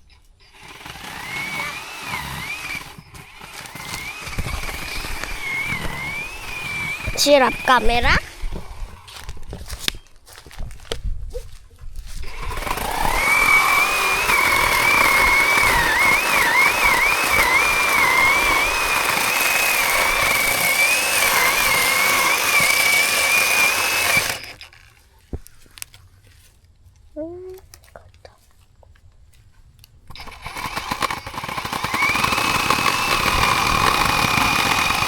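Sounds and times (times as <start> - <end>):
cordless chainsaw whining: 0.4 - 9.8, 12.1 - 24.9, 30.1 - 35.0.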